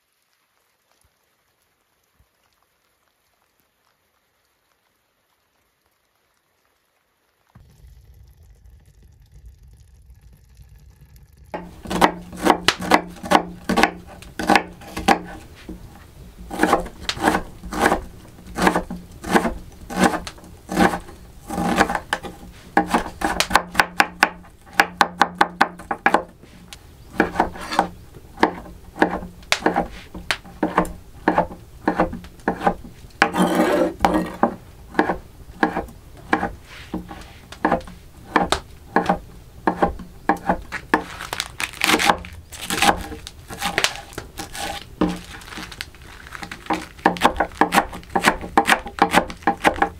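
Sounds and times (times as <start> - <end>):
sharp wooden knocks and chops: 11.6 - 15.8, 16.4 - 26.3, 27.2 - 45.7, 46.3 - 49.9.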